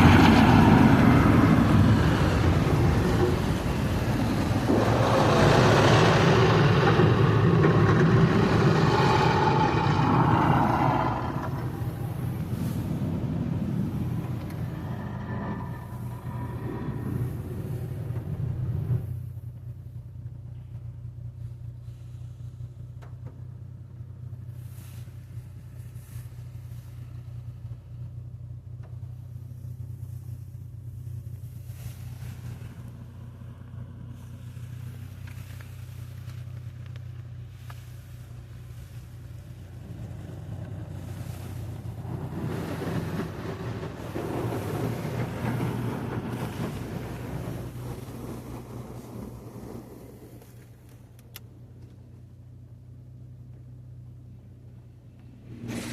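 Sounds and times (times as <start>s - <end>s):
rushing water spray: 0.0s - 18.2s, 37.4s - 50.8s, 55.3s - 55.9s
car wash machinery humming: 0.0s - 55.9s.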